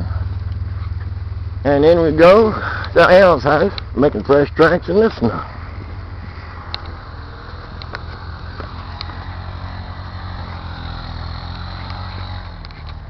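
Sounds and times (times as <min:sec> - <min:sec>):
car driving through snow: 0:05.1 - 0:13.0.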